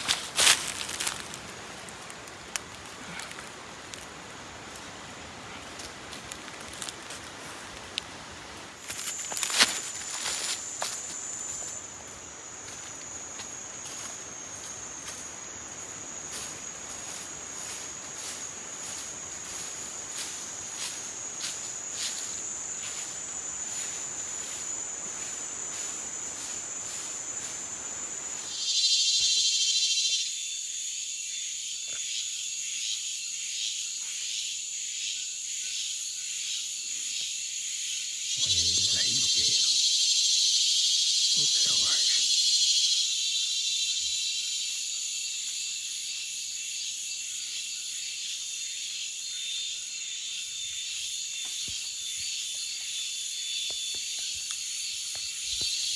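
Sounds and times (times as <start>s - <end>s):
buzzing insect call: 0.0s - 7.8s, 8.8s - 55.9s
crickets trilling: 0.0s - 55.9s.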